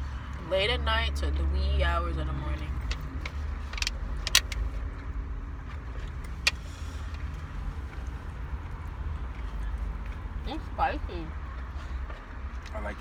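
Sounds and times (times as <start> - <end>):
car cabin rumble: 2.4 - 4.8
sharp clicks: 2.8 - 4.6.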